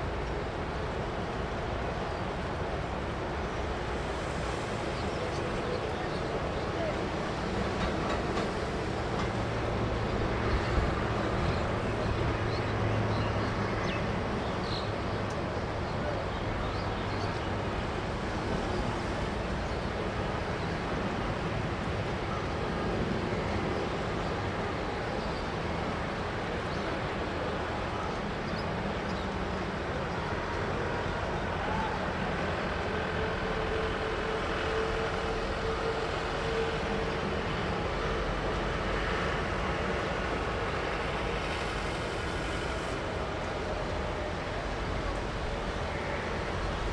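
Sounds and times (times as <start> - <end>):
jet engine noise: 0.0 - 14.4, 25.7 - 46.9.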